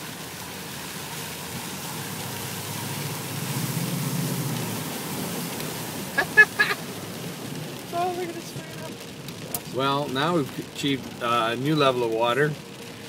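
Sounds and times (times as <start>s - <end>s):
tyre spray and road noise: 0.0s - 13.0s.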